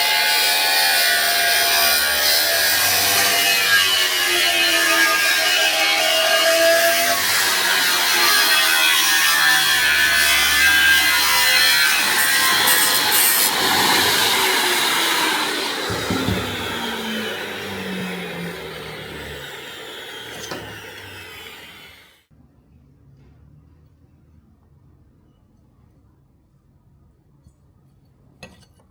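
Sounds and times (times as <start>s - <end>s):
power tool grinding metal: 0.0s - 22.2s.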